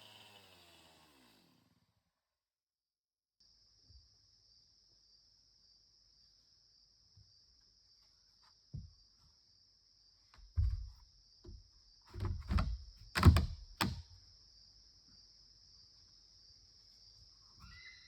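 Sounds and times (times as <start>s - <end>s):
heavy thuds and knocks: 10.4s - 14.0s.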